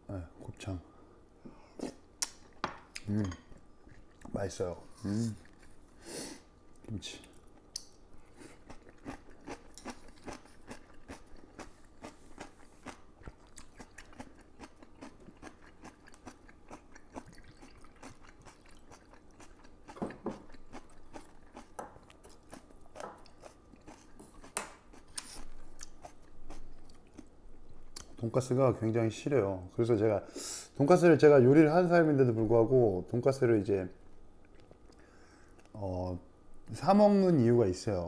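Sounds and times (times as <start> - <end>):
person chewing crunchy food: 3.8 - 4.4, 5.3 - 28.2, 34.4 - 35.8.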